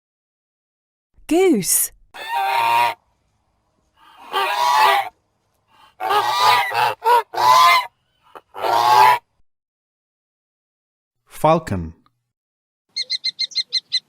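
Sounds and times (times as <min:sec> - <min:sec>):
goose honking: 0:02.2 - 0:03.0, 0:04.0 - 0:05.1, 0:05.8 - 0:09.3.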